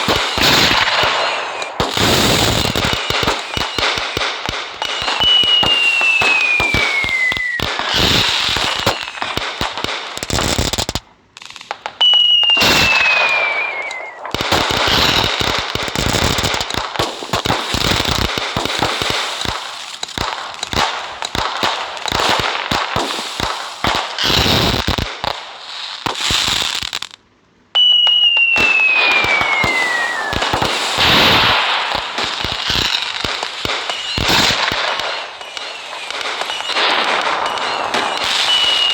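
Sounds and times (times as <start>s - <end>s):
firework whistle falling in pitch: 0.0s - 4.2s, 4.8s - 9.4s, 12.0s - 15.2s, 27.8s - 31.8s, 32.8s - 38.9s
fireworks crackling and popping: 0.0s - 38.9s.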